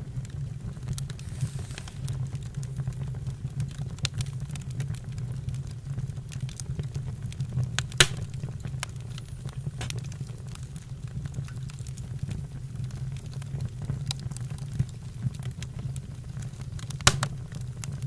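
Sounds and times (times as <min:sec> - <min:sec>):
campfire crackling: 0:00.0 - 0:18.0
low steady rumble: 0:06.2 - 0:11.4, 0:17.0 - 0:18.0.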